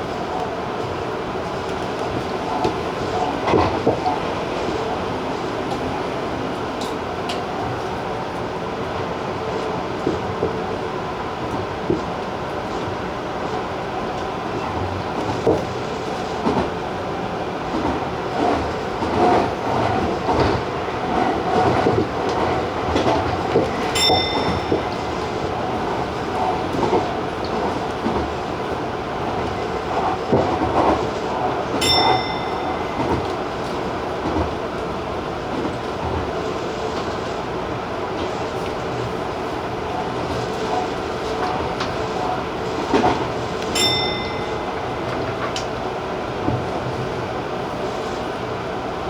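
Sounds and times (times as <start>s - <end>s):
electric train rolling: 0.0s - 49.0s
wheels clacking over rails: 17.7s - 36.4s.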